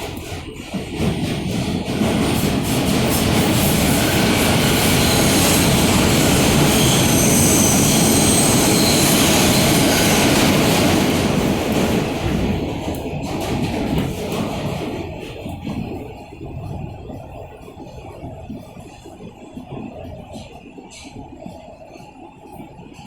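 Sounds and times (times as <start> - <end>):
subway wheels rumbling on rail: 0.0 - 23.0
high-pitched wheel squeal: 4.0 - 10.4.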